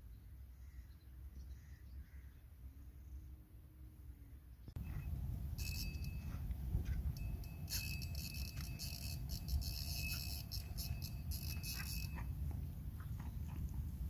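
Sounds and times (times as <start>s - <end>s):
steady low rumble: 4.7s - 14.0s
insects chirring: 7.2s - 12.2s.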